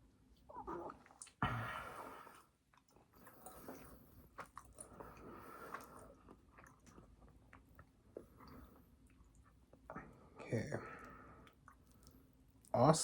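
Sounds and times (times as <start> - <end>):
chewing with wet smacks: 2.7 - 10.0, 11.4 - 12.7.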